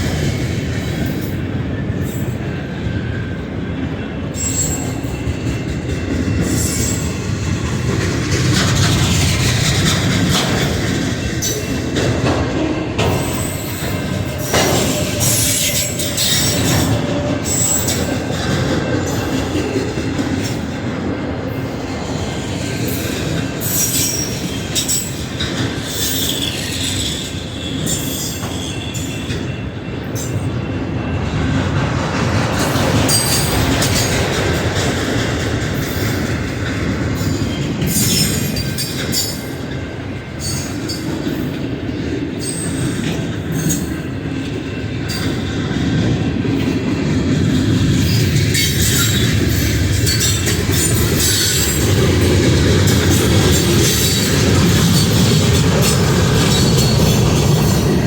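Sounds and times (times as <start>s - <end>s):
train wheels rumbling on rail: 0.0s - 58.0s
high-pitched wheel squeals: 4.4s - 5.5s, 13.1s - 18.1s, 22.9s - 31.2s.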